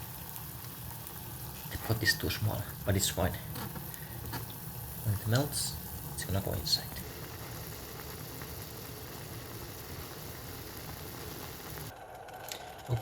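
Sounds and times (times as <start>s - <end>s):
water boiling in a pot: 0.0s - 13.0s.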